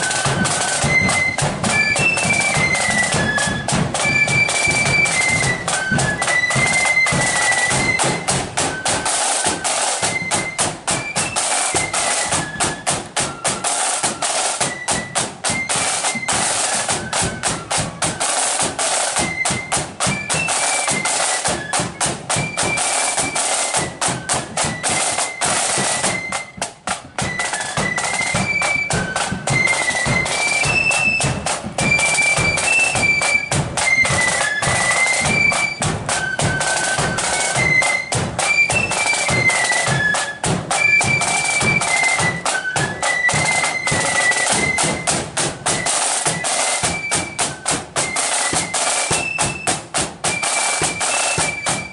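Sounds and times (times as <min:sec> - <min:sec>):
flutes playing a melody: 0:00.0 - 0:51.9
snare drum rolls: 0:00.0 - 0:51.9.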